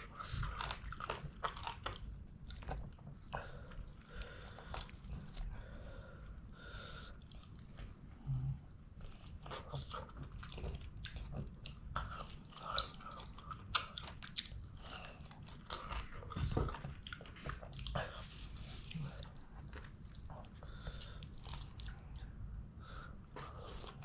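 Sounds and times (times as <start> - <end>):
person chewing food: 0.0 - 24.0.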